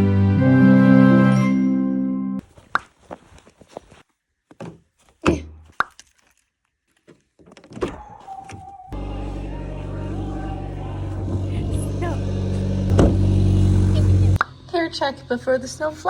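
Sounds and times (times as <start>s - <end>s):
knocks and thunks: 7.4s - 8.7s, 12.5s - 13.9s
car engine hum: 8.9s - 16.0s.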